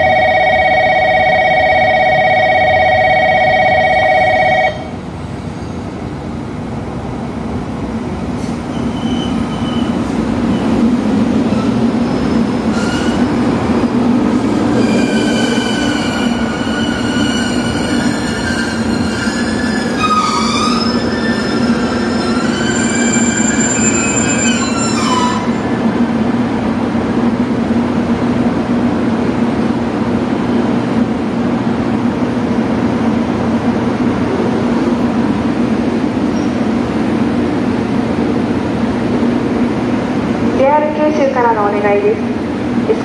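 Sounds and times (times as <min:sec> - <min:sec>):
steady ringing tone: 0:00.0 - 0:04.9
electric train rolling: 0:00.0 - 0:40.6
high-pitched brake squeal: 0:08.7 - 0:10.7, 0:12.0 - 0:13.3, 0:14.8 - 0:25.6.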